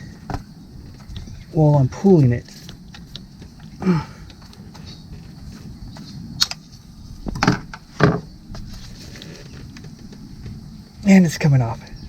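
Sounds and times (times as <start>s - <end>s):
knocks: 7.3s - 8.3s.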